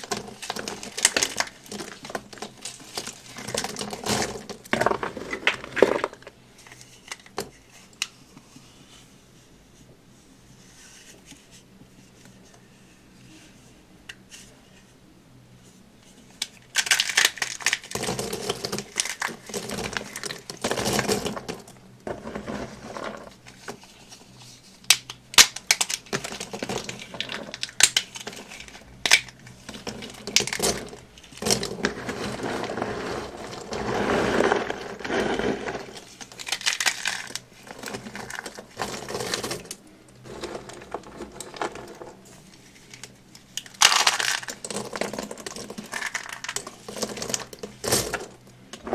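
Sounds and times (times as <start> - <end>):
dry soap crunching by hand: 0.0 - 6.4, 16.7 - 23.3, 24.9 - 42.2, 42.9 - 47.9.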